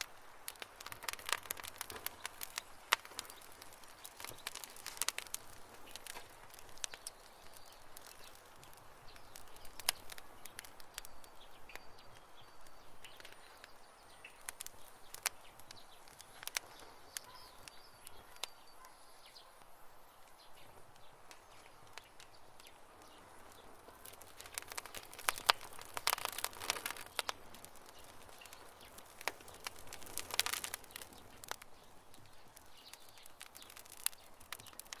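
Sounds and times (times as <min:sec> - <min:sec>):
campfire crackling and popping: 0:00.0 - 0:35.0.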